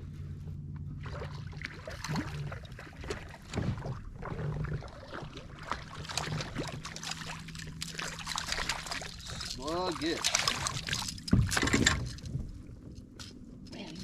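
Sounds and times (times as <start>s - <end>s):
steady low hum: 0.0s - 14.0s
water splashing: 1.0s - 12.4s.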